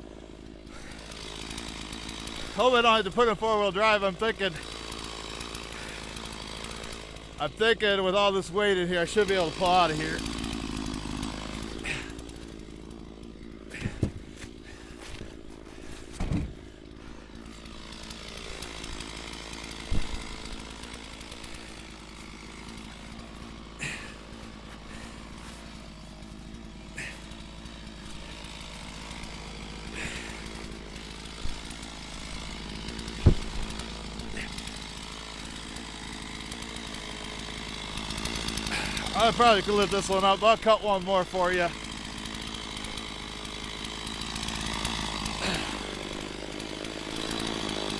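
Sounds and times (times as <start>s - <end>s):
chainsaw idling: 0.0s - 47.9s
heavy thumps of firewood: 13.7s - 16.8s, 18.8s - 22.8s, 28.1s - 34.4s.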